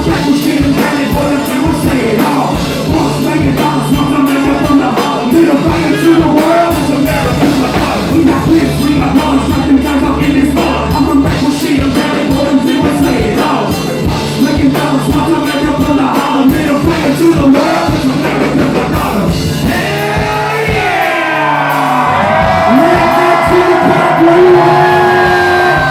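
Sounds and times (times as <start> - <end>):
live rock band playing: 0.0 - 25.9
singer shouting and singing: 0.0 - 25.9.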